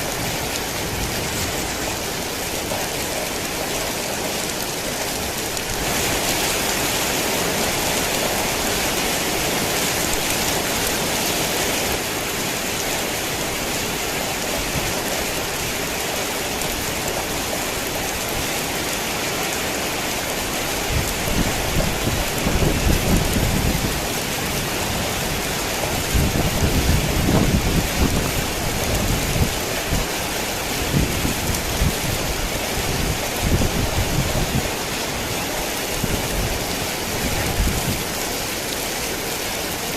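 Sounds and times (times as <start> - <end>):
heavy rain hissing: 0.0 - 39.9
rolling thunder rumbles: 20.8 - 38.3.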